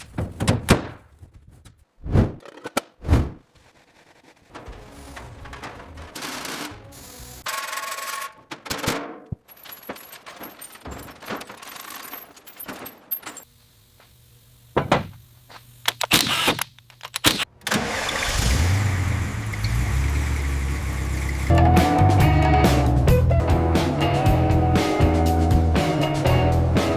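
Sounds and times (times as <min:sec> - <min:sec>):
truck engine starting and rumbling: 0:04.5 - 0:07.4, 0:17.5 - 0:26.8.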